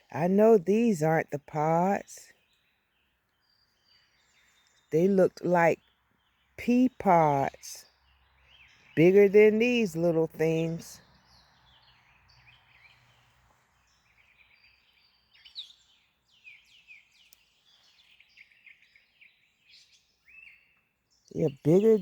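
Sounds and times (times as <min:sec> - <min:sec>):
faint bird chirps: 0:11.0 - 0:22.0.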